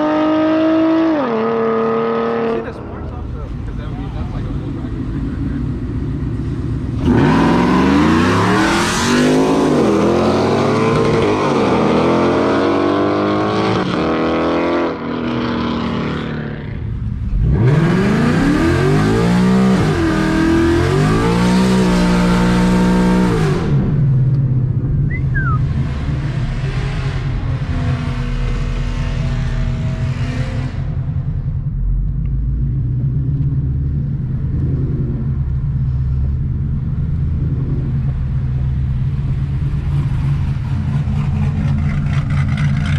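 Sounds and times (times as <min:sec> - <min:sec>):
cars accelerating hard: 0:00.0 - 0:24.1
engine low rumble: 0:01.7 - 0:11.7, 0:15.1 - 0:42.9.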